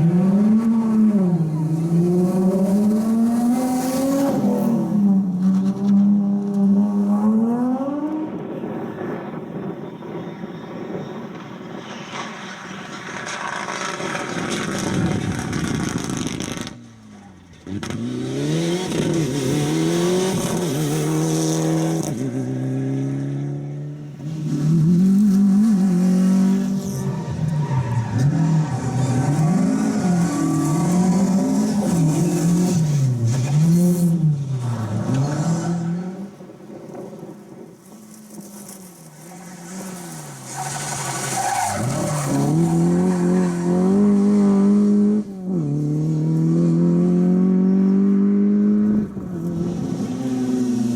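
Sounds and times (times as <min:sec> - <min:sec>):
rally car engine revving on and off: 0:00.0 - 0:08.4, 0:17.6 - 0:36.5, 0:41.5 - 0:50.9
rally car accelerating through gears: 0:00.0 - 0:08.5, 0:17.6 - 0:37.2, 0:39.6 - 0:50.9.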